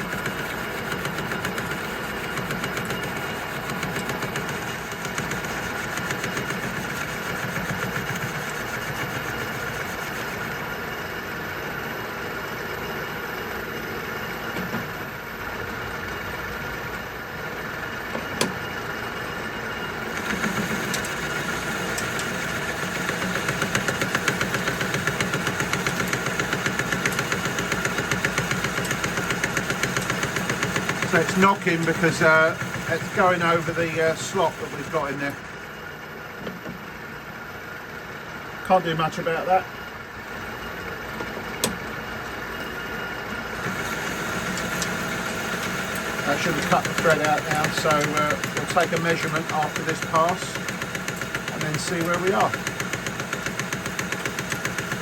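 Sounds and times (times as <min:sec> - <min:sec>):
metal lathe cutting with knocking: 0:00.0 - 0:10.7, 0:19.9 - 0:35.7, 0:43.6 - 0:55.0.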